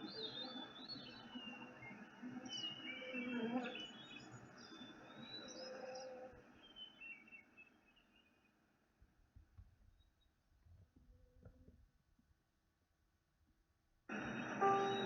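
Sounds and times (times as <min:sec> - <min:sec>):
songbirds chirping: 0:00.0 - 0:09.0, 0:14.1 - 0:15.0.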